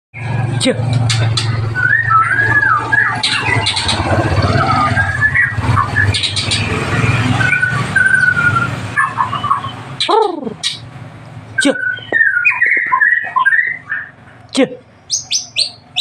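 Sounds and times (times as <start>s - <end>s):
bird singing whistled phrases: 1.7s - 6.6s, 7.2s - 10.8s, 11.6s - 14.2s, 15.1s - 16.0s.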